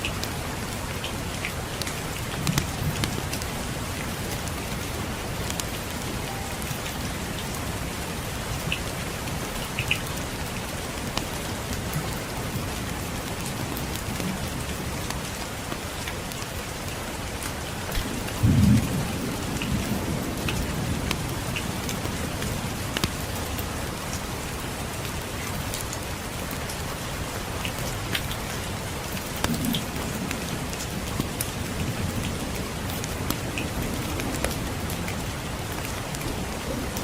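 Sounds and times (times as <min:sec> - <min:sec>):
steady rainfall: 0:00.0 - 0:37.0
distant thunder rumble: 0:18.0 - 0:21.5.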